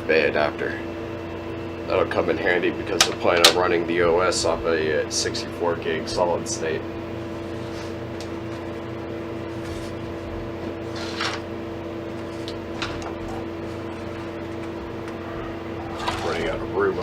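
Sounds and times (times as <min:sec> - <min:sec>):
steady background hum: 0:00.0 - 0:17.0
rustles and clicks of handling: 0:09.5 - 0:11.5, 0:12.1 - 0:15.2.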